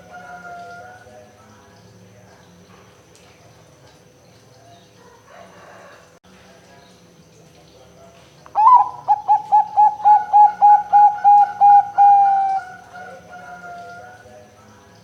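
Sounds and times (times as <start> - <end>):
dove cooing: 8.6 - 14.3.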